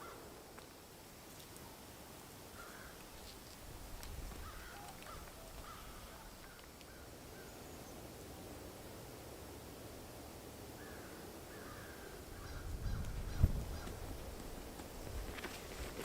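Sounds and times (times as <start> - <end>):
short bird calls: 4.4 - 7.6.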